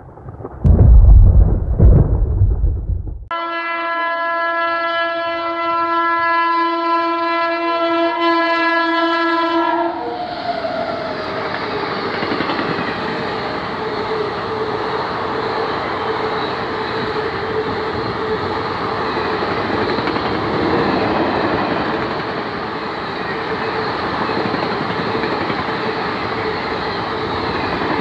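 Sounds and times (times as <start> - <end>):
thunder rumbling: 0.0 - 3.3
locomotive horn blast: 3.3 - 10.0
passing train rumble and clatter: 10.0 - 28.0.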